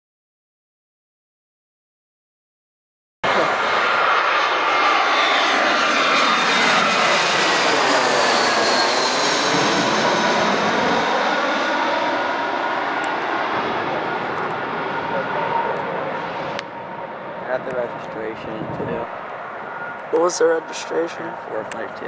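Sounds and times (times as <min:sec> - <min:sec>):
airliner passing overhead: 0:03.2 - 0:22.0.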